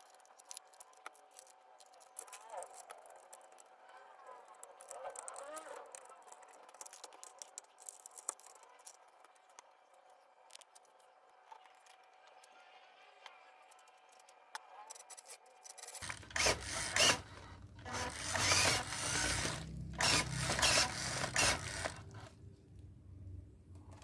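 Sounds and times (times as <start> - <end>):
rasping mechanical rubbing: 15.0 - 22.3.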